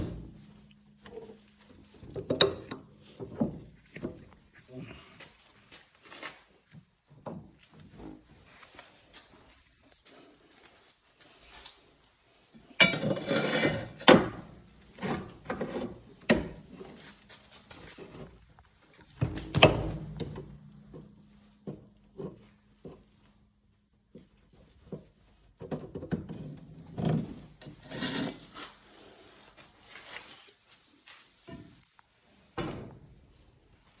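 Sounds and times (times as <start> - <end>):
metal knocks and thunks: 0.0 - 1.3, 19.2 - 22.4, 32.6 - 33.3
tool clatter: 0.0 - 4.4, 12.8 - 17.1.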